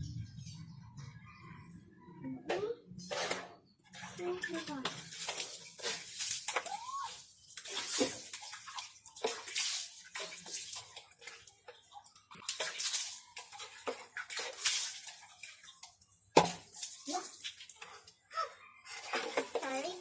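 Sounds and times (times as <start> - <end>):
water splashing: 3.9 - 18.1.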